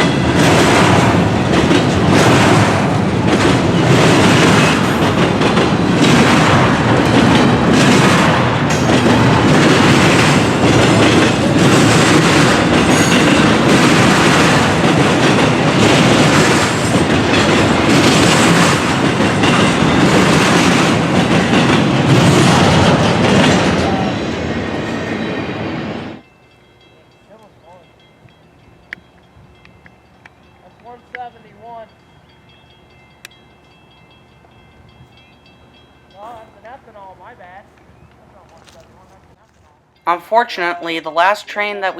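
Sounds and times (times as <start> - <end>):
wheels clacking over rail joints: 0.0 - 24.8
freight train rumbling past: 0.0 - 41.9.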